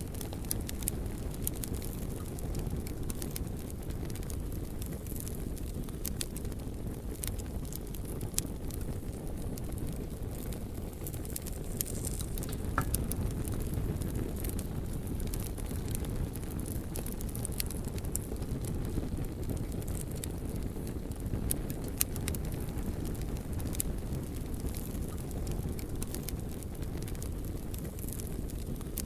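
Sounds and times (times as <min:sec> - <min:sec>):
wood fire crackling: 0:00.0 - 0:29.0
steady low rumble: 0:08.7 - 0:16.4.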